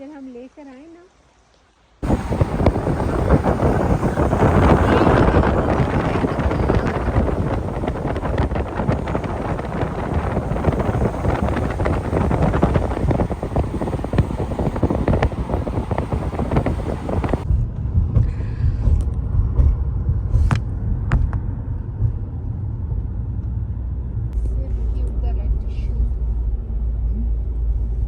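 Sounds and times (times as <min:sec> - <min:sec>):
wind buffeting microphone: 0:02.0 - 0:22.5
low vehicle rumble: 0:02.0 - 0:28.0.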